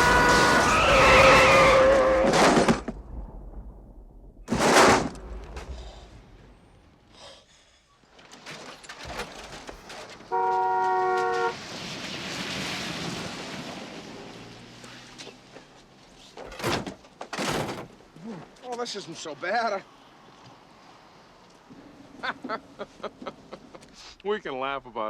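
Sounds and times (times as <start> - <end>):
vehicle horn blast: 0.0 - 0.6, 10.3 - 11.6
road and wind rush: 8.9 - 18.2, 19.3 - 24.0
vehicle rushing past: 11.5 - 15.5.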